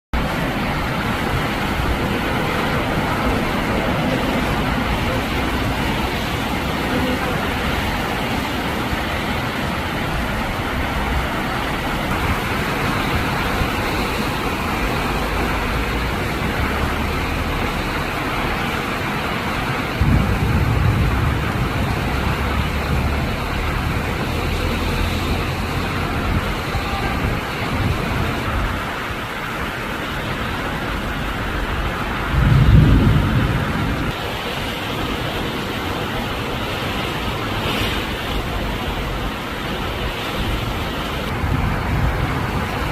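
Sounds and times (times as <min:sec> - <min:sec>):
heavy rain: 0:00.1 - 0:42.9
wind: 0:00.1 - 0:42.9
low rumbles of thunder: 0:19.8 - 0:24.3, 0:32.1 - 0:34.2, 0:41.3 - 0:42.9.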